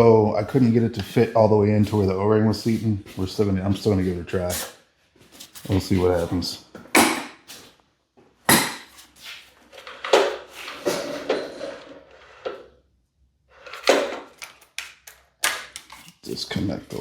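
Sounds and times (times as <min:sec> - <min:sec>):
tools clunking: 0:13.6 - 0:16.3.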